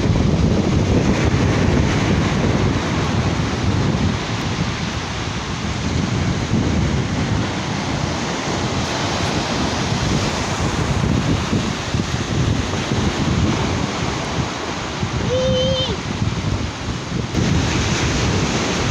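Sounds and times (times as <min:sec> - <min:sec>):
waves washing onto beach: 0:00.0 - 0:18.9
wind buffeting microphone: 0:00.0 - 0:18.9.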